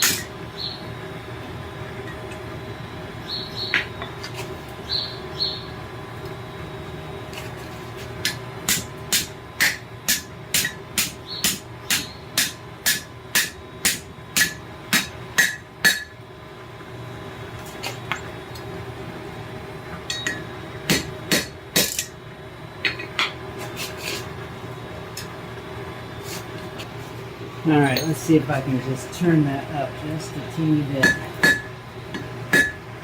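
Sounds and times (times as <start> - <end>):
hammer striking hot metal: 0.0 - 0.3, 8.2 - 16.2, 20.1 - 22.2, 30.9 - 32.8.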